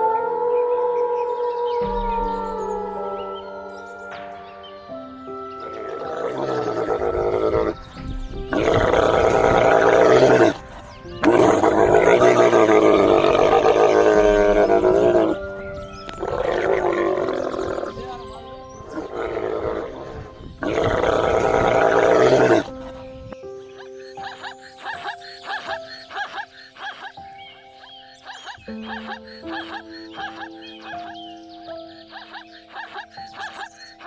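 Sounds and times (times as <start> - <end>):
background music: 0.0 - 34.0
big cat roaring: 5.9 - 7.8, 8.5 - 10.6, 11.2 - 15.4, 16.2 - 18.1, 18.9 - 22.7.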